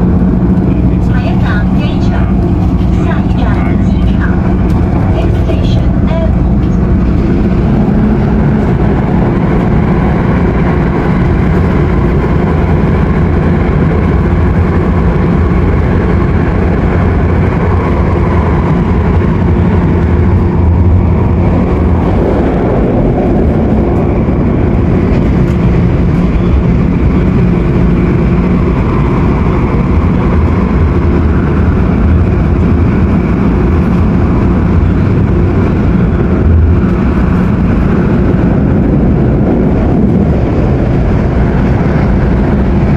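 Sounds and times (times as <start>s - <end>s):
low motor hum: 0.0s - 42.9s
noisy air conditioning: 0.0s - 42.9s
wheels rumbling on rail: 0.0s - 42.9s.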